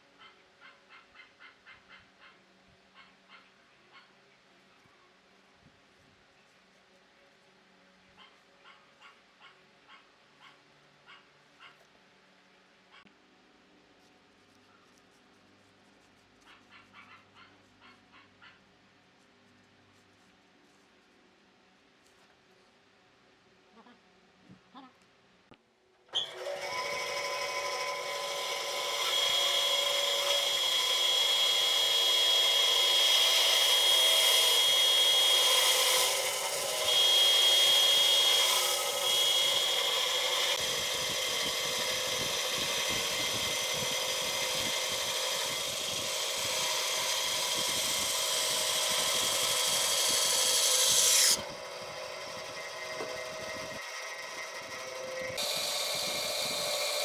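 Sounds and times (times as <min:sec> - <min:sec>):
power tool motor whining: 0:26.1 - 0:57.0.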